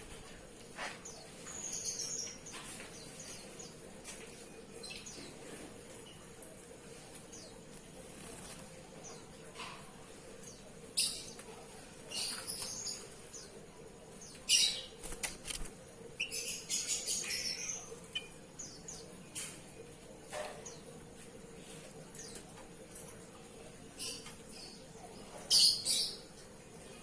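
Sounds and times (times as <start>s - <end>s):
bird fluttering wings: 8.0s - 8.8s, 15.0s - 15.8s.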